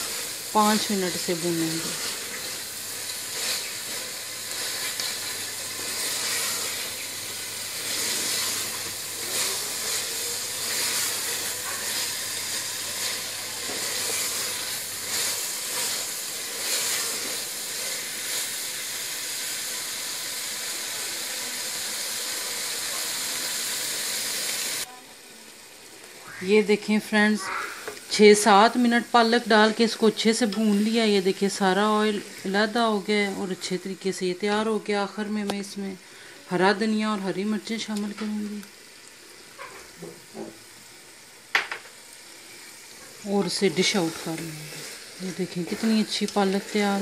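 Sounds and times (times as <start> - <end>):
curry sizzling in oil: 0.0 - 47.0.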